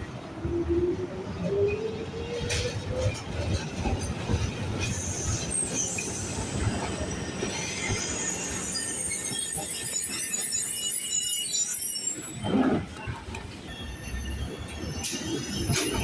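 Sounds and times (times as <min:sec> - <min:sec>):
tram rumbling on rails: 0:00.0 - 0:16.0
wheel squeal on rails: 0:04.3 - 0:16.0.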